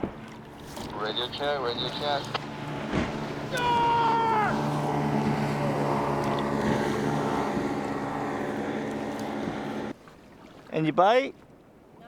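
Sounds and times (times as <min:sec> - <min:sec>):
boat motor drone: 0:00.0 - 0:10.0.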